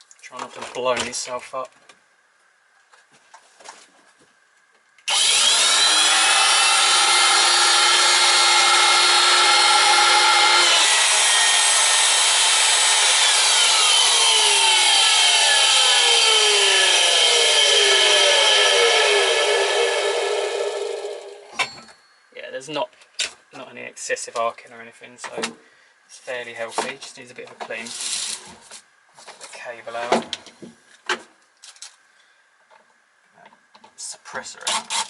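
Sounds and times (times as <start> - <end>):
electric motor whining: 5.1 - 21.6.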